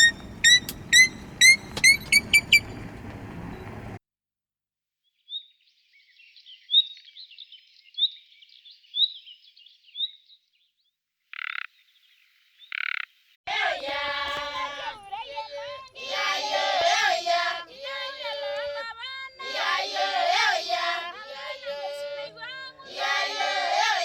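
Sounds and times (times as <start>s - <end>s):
loud pitched animal call: 0.0s - 2.7s
animal chirping: 0.0s - 2.9s
animal rasping calls: 0.0s - 3.4s.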